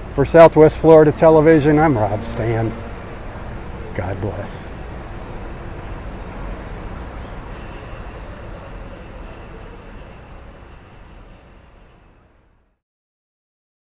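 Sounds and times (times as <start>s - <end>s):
faint high whine: 0.0s - 12.7s
traffic rumble and hiss: 0.0s - 12.7s.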